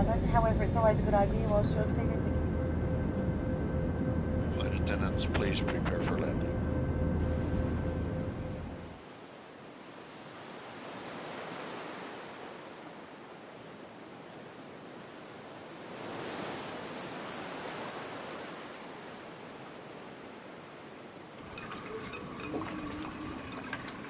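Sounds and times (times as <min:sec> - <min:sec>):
sea waves washing in: 0:07.2 - 0:24.0.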